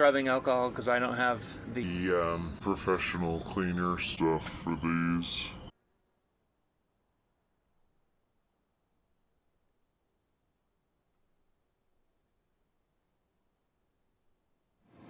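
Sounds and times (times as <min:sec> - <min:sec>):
insects chirping: 0:00.0 - 0:02.6, 0:05.6 - 0:14.9.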